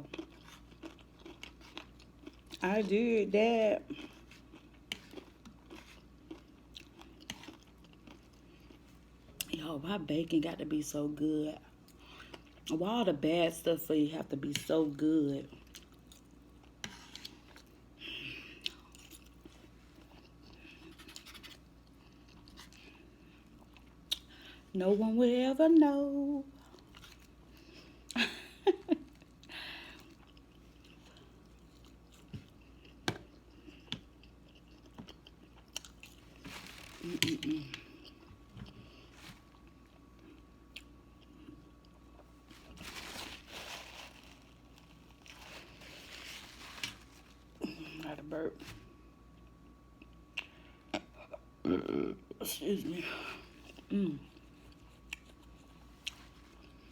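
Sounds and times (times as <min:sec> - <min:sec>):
person chewing food: 0:00.0 - 0:02.6, 0:03.9 - 0:09.5, 0:15.5 - 0:24.4, 0:29.1 - 0:42.8, 0:53.6 - 0:56.9.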